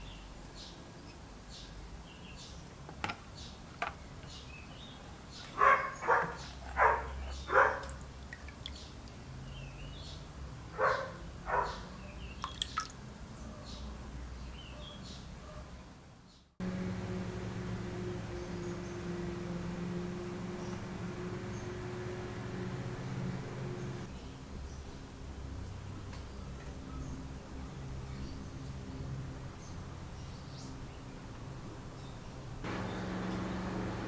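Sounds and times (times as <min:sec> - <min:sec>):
birds chirping: 0:03.3 - 0:10.2, 0:10.8 - 0:15.3, 0:16.3 - 0:24.2, 0:32.0 - 0:34.0.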